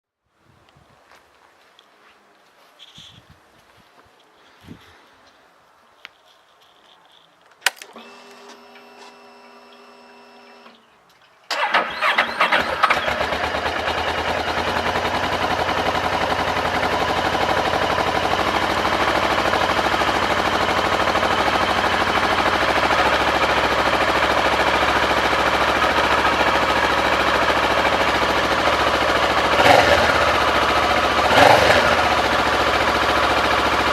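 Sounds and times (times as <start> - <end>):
starter click: 7.5 - 9.2
electric starter whine: 7.6 - 10.9, 11.5 - 15.4
motorcycle engine running and revving: 12.8 - 33.9.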